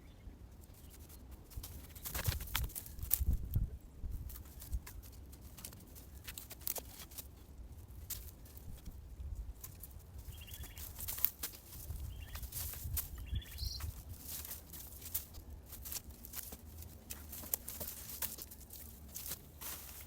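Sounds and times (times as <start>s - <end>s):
dry plant stems crackling: 0.6s - 20.0s
bird chirps: 10.3s - 10.9s, 12.0s - 12.5s, 13.1s - 14.0s.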